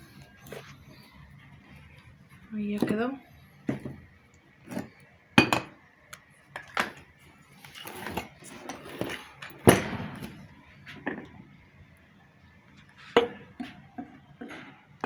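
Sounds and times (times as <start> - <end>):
metal scraping on workbench: 6.8 - 10.4.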